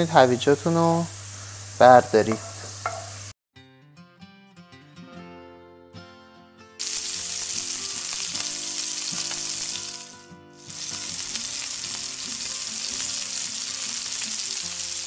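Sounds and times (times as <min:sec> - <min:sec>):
eggplant sizzling in hot oil: 0:00.0 - 0:03.3, 0:06.8 - 0:15.0.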